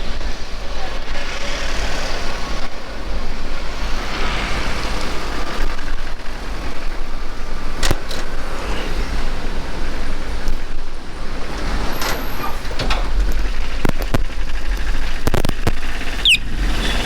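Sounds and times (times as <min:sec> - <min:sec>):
motor vehicles passing: 0:00.0 - 0:17.0
steady low rumble: 0:12.6 - 0:17.0.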